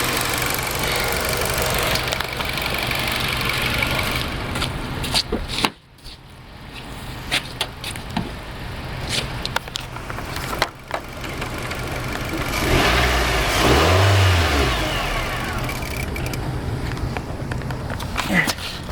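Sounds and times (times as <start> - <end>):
car engine idling and revving: 0.0 - 5.3, 6.4 - 18.9
sharp clicks: 15.5 - 17.8.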